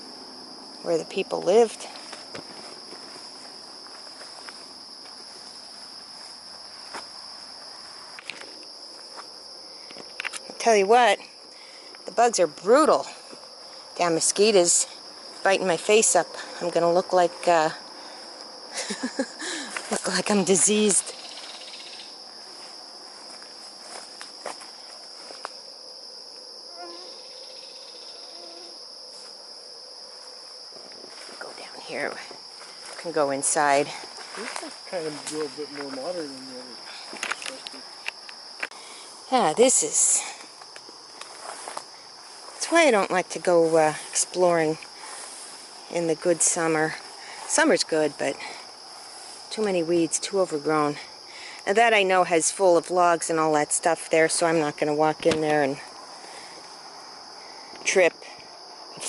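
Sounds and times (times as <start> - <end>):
insects chorus drone: 0.0 - 59.0
footsteps in brush: 1.9 - 10.6, 22.3 - 25.7, 30.0 - 33.2, 33.9 - 38.8, 40.4 - 42.8, 43.8 - 45.9.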